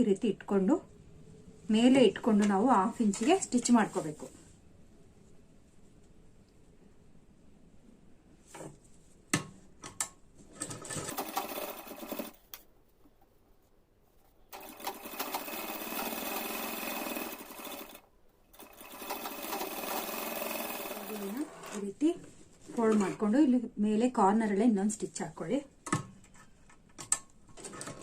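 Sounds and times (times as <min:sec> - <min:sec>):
sewing machine stitching: 0:10.6 - 0:12.4, 0:14.5 - 0:18.0, 0:18.6 - 0:21.9.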